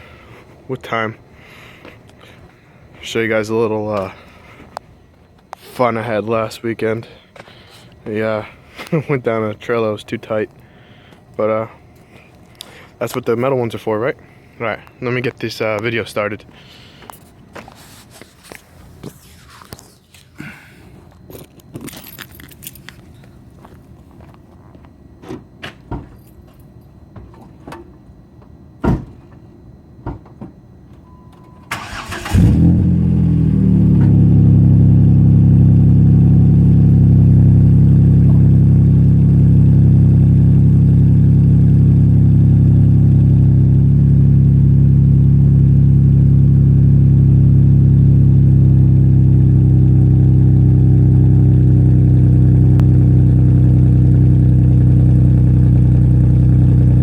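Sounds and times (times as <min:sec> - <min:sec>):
engine idling with deep exhaust: 0:00.0 - 0:17.2, 0:32.4 - 0:57.0
engine cranking and starting: 0:31.7 - 0:32.9.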